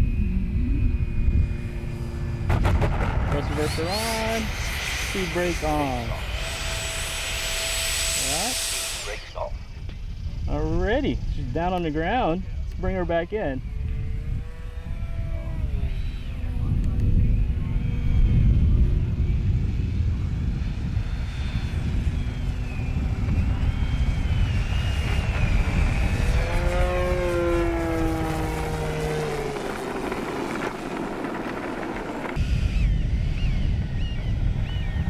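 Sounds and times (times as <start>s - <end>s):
model jet fan whining: 0.0s - 35.0s
wind rumble on microphone: 0.0s - 35.0s
falling tones passing by: 20.8s - 32.7s.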